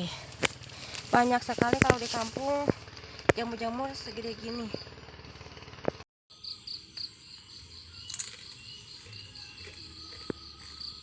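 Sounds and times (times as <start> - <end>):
insects chirping: 6.3 - 11.0.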